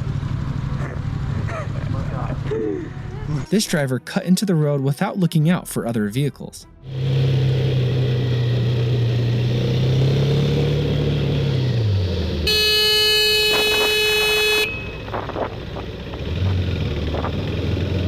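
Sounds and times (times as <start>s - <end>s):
vehicle engine droning: 0.0s - 3.3s, 6.8s - 18.0s
car horn blast: 12.4s - 15.4s.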